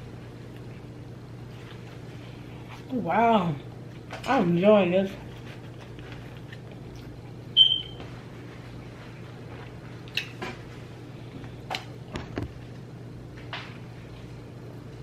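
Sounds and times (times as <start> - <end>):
steady low hum: 0.0 - 15.0
mouth chewing wet smacks: 5.7 - 7.5.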